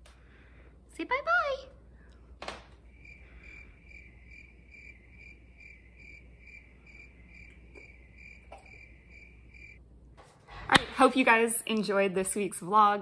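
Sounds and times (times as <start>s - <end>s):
cricket chirping: 2.8s - 9.8s.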